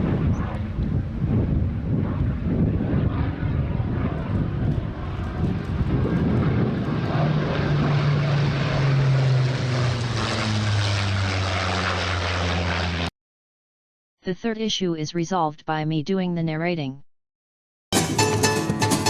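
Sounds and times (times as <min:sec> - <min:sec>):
propeller airplane engine: 0:00.0 - 0:13.1
steady engine drone: 0:00.0 - 0:13.1.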